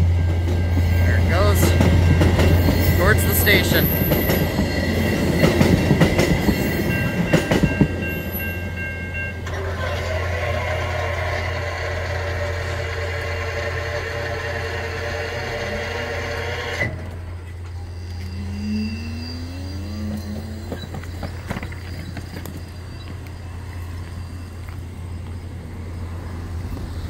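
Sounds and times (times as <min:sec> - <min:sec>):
level-crossing bell ringing: 0:00.0 - 0:10.2, 0:17.6 - 0:25.8
train wheels clicking over rail joints: 0:00.2 - 0:25.8.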